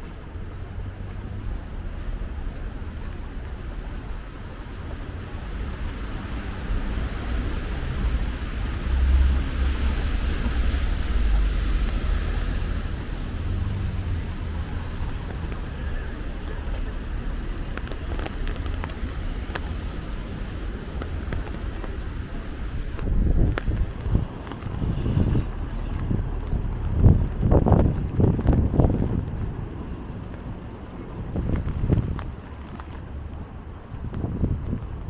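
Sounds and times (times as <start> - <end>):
water drips ticking: 0.0 - 24.7
car tyres swishing on wet road: 0.0 - 35.0
rain hissing on wet street: 0.0 - 35.0
wind rumbling on microphone: 0.0 - 35.0.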